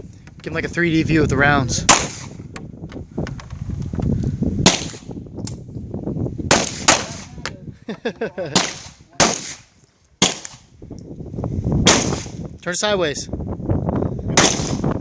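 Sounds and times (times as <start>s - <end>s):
handgun shots echoing: 8.6s - 9.6s.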